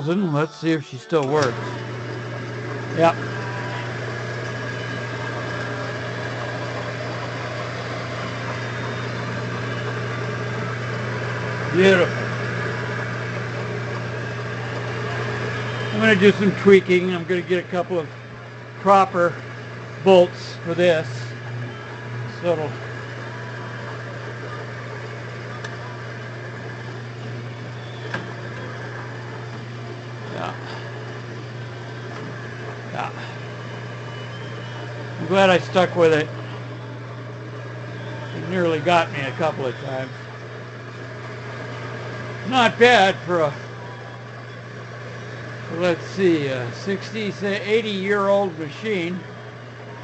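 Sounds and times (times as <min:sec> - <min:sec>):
drill press motor humming: 0:00.0 - 0:50.0.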